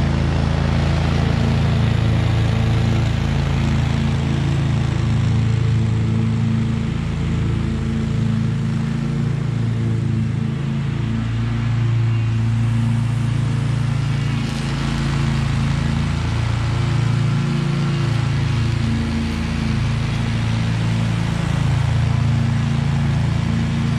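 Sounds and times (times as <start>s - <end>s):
mower engine running: 0.0s - 23.9s.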